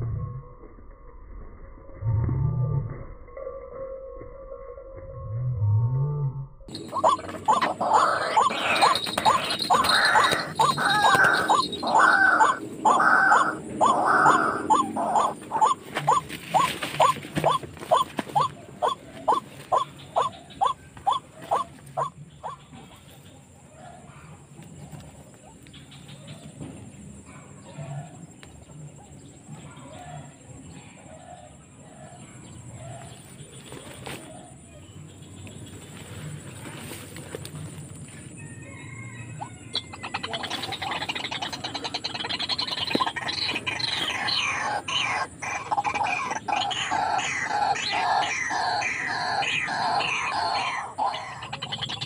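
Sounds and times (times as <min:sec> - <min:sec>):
harsh croaking bird calls: 0:06.7 - 0:52.0
bird rising call notes: 0:38.8 - 0:52.0.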